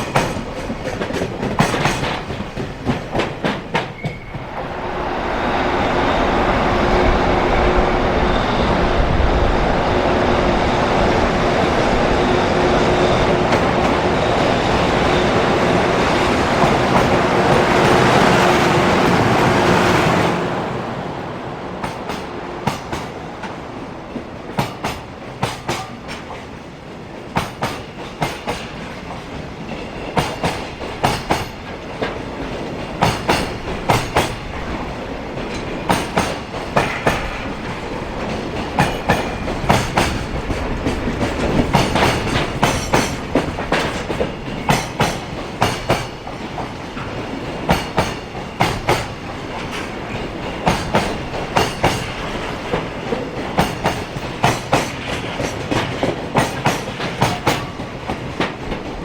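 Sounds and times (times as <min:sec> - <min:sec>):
train wheels clicking over rail joints: 0:00.0 - 0:04.6, 0:21.8 - 0:59.0
locomotive rushing past: 0:00.0 - 0:26.9.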